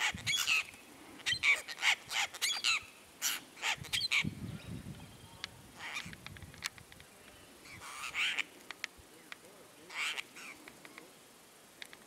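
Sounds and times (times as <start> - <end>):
birds squawking: 0.0 - 4.3, 5.8 - 6.2, 7.6 - 8.6, 9.9 - 10.7.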